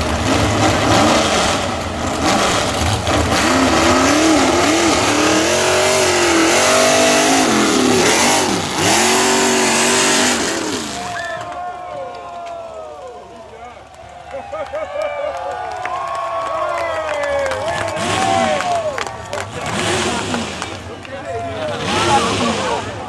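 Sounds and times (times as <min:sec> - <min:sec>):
truck engine revving hard: 0:00.0 - 0:11.3, 0:17.4 - 0:23.0.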